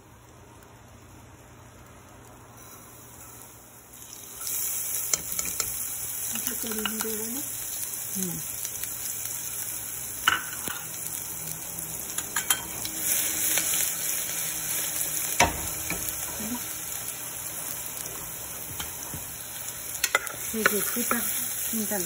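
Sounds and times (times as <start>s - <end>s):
oil sizzling with vegetables: 0.0s - 22.0s.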